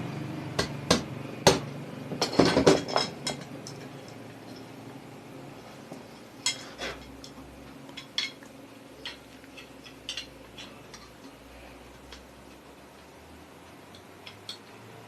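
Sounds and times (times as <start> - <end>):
faint steady hum: 0.0 - 15.0
metal tools clinking on workbench: 2.2 - 3.8.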